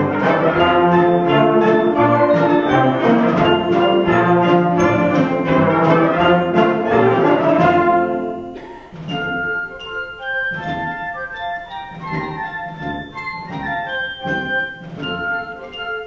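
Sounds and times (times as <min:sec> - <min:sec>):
concert band playing a march: 0:00.0 - 0:16.0.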